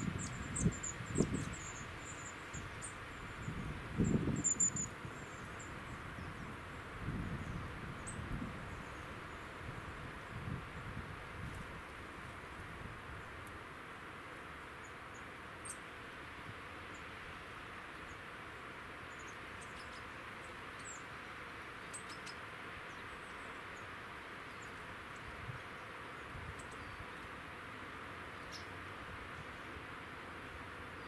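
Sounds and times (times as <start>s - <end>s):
small birds chirping: 0.0s - 9.8s, 17.9s - 27.4s, 28.2s - 29.8s
steady background hiss: 0.0s - 31.0s.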